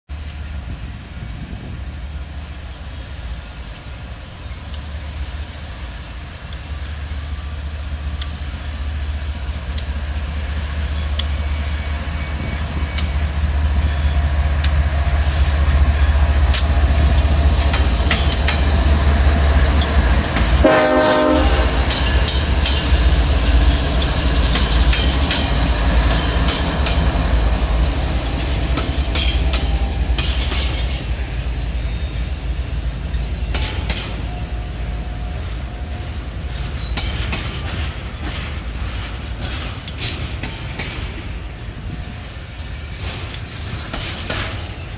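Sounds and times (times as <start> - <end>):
train rumbling past: 0.1 - 44.9
wheels clicking over rail joints: 1.0 - 8.7, 14.5 - 20.7, 21.7 - 31.5, 33.1 - 34.5, 35.9 - 44.9
train horn blast: 20.5 - 22.1.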